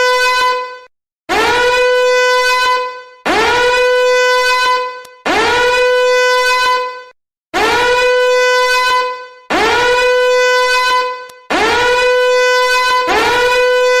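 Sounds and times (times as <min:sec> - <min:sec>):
brassy horn blasts: 0:00.0 - 0:07.0, 0:07.6 - 0:14.0.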